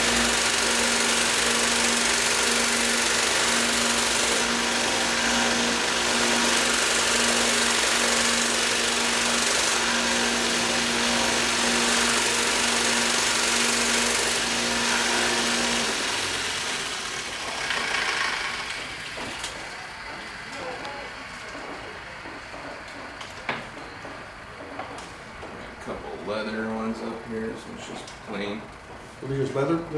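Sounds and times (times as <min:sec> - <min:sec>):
electric knife grinder motor hum: 0:00.0 - 0:19.7.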